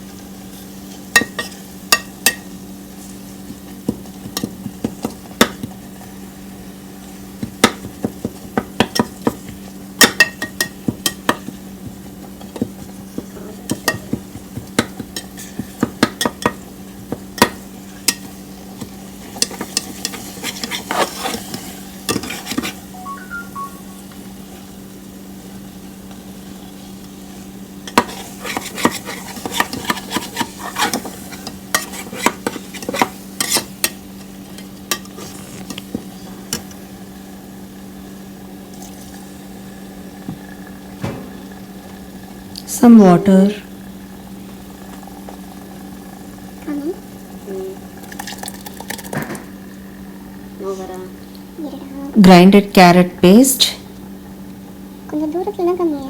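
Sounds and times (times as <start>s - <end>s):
faint sizzle: 0.0s - 56.0s
spoon scraping cooking pan: 1.0s - 2.5s, 8.1s - 22.9s, 27.8s - 36.7s.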